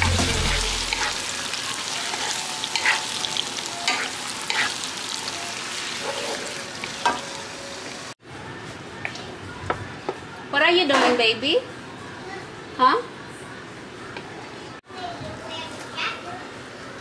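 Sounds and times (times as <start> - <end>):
food sizzling in a wok: 0.0 - 8.2
spatula scraping a pan: 2.1 - 3.2, 3.9 - 4.9, 6.0 - 6.6.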